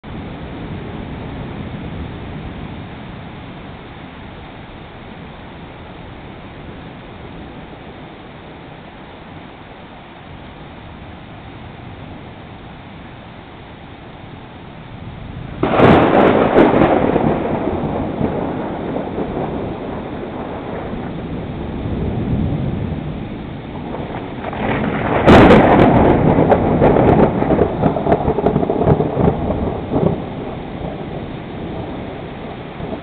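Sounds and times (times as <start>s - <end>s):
steady rain: 0.0s - 33.0s
thunder claps: 15.4s - 33.0s.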